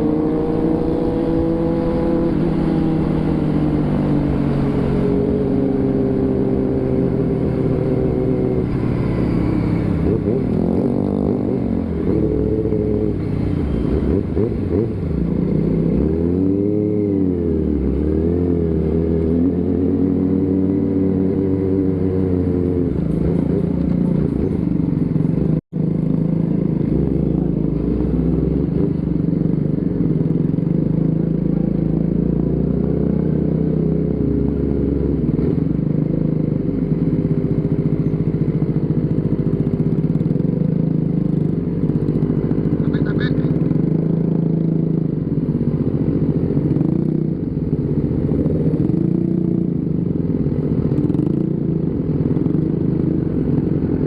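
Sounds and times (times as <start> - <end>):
motorcycle engine running: 35.7 - 54.0.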